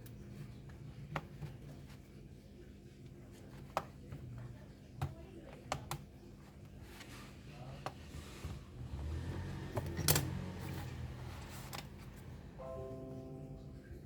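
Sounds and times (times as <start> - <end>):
faint low hum: 0.0 - 14.0
clicks and taps on plastic case: 3.5 - 6.1.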